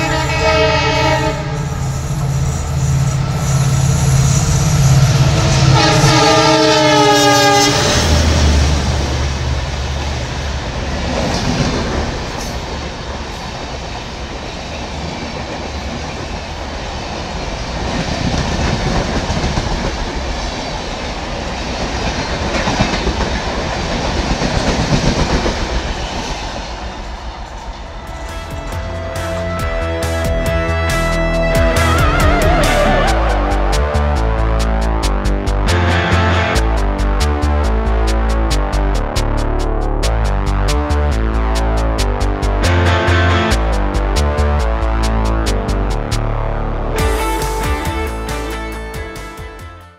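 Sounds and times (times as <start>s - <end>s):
locomotive air horn: 0.0s - 8.4s, 28.0s - 35.0s, 35.7s - 37.0s, 47.0s - 49.9s
heavy low locomotive rumble: 0.0s - 13.6s, 27.1s - 49.5s
train wheels clacking on rail joints: 10.9s - 29.5s.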